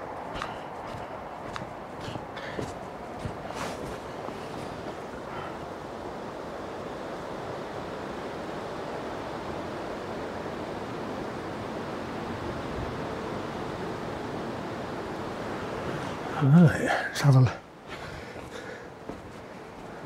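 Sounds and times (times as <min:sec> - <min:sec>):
steady rushing hiss: 0:00.0 - 0:12.7.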